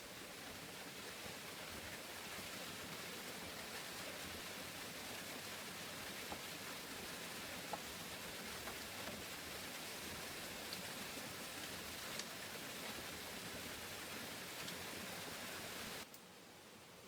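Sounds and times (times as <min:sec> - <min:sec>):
steady rain hiss: 0:00.0 - 0:17.0
raindrops tapping: 0:07.6 - 0:09.7.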